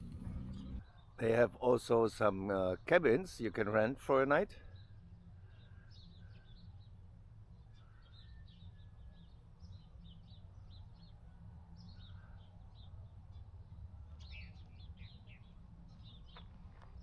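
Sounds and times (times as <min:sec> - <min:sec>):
faint low hum: 0:00.0 - 0:01.3
small birds chirping: 0:00.0 - 0:01.6, 0:04.5 - 0:17.0.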